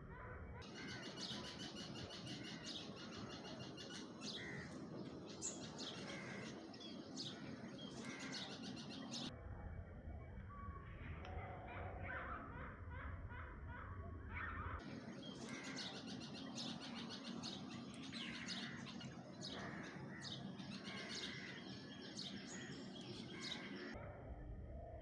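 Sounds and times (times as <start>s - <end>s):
small birds chirping: 0.6s - 9.3s, 14.6s - 24.0s.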